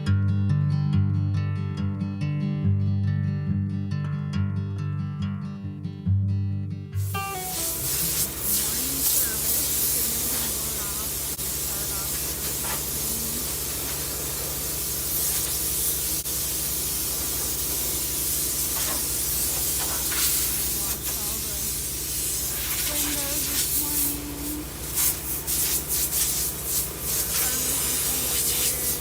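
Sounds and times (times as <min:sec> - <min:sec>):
low engine drone: 0:07.0 - 0:17.7, 0:18.8 - 0:25.5, 0:26.4 - 0:29.0
loud even hiss: 0:07.0 - 0:29.0
faint voices: 0:07.6 - 0:14.6, 0:22.6 - 0:24.9, 0:27.1 - 0:29.0.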